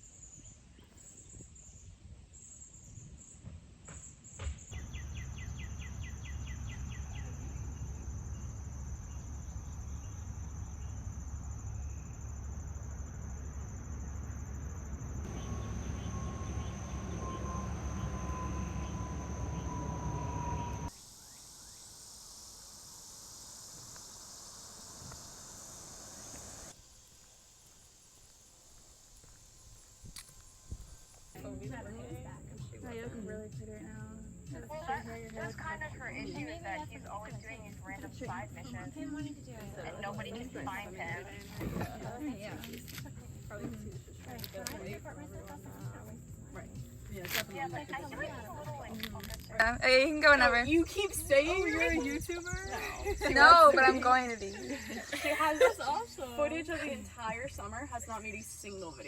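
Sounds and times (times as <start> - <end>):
insects droning high-pitched: 2.4 - 59.0
heavy low rumble: 4.7 - 20.9.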